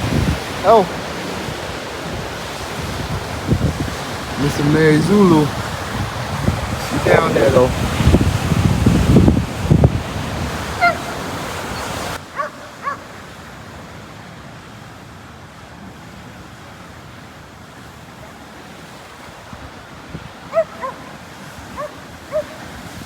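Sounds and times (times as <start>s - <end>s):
wind buffeting microphone: 0.0s - 14.1s, 18.1s - 23.0s
ocean surf: 0.0s - 23.0s
distant calls or yelps: 10.6s - 13.3s, 20.4s - 22.8s.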